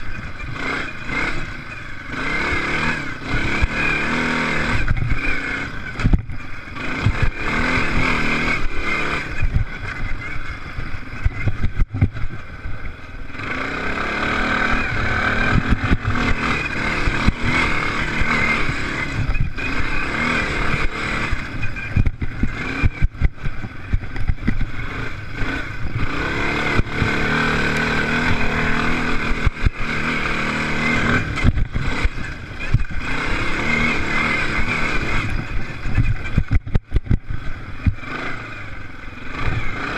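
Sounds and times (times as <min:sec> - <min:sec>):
motocross engines revving: 0:00.0 - 0:39.9
knocks and crackles: 0:04.7 - 0:13.2, 0:14.7 - 0:38.0.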